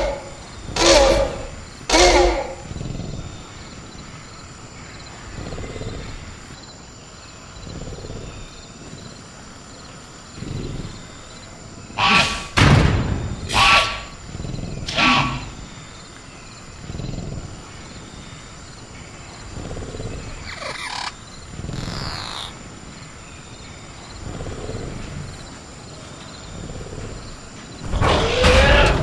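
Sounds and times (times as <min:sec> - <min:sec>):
creature shrieks: 0:00.0 - 0:02.6, 0:12.0 - 0:12.6, 0:13.5 - 0:14.2, 0:14.9 - 0:15.5, 0:20.4 - 0:22.5, 0:28.0 - 0:29.0
crickets chirring: 0:00.0 - 0:29.0
creature growls: 0:19.5 - 0:22.6, 0:27.9 - 0:29.0.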